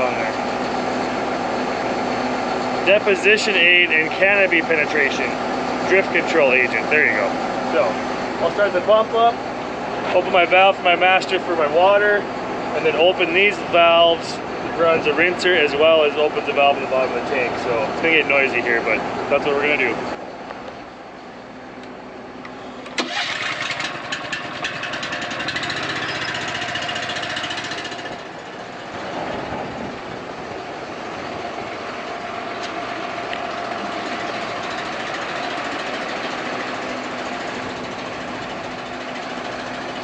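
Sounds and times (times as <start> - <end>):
pump running: 0.0 - 21.6, 22.4 - 40.0.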